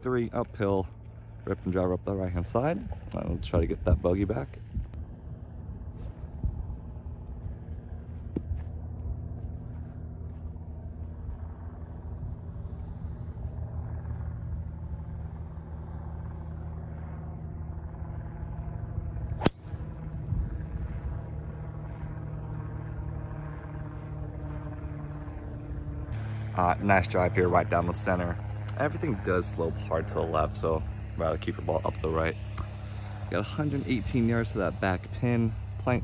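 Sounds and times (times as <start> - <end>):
low engine hum: 0.0 - 36.0
golf ball struck: 19.4 - 20.0.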